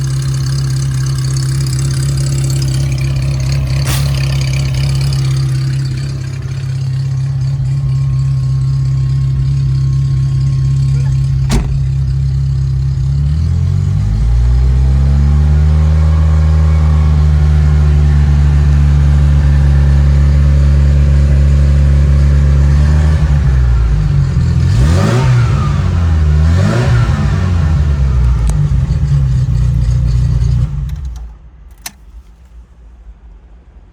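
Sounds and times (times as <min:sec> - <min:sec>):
car engine idling and revving: 0:00.0 - 0:33.8
click: 0:30.9 - 0:32.0.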